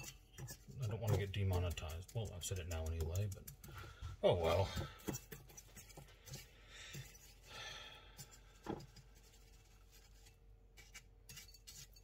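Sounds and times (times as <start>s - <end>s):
chicken rustling in coating: 8.2s - 12.0s.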